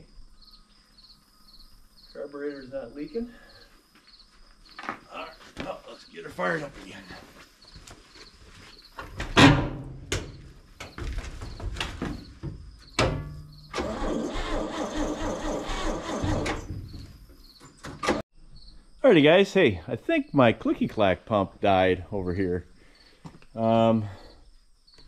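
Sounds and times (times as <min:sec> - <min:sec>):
loud clunk: 0:13.0 - 0:13.6
engine cranking on starter: 0:13.7 - 0:16.8.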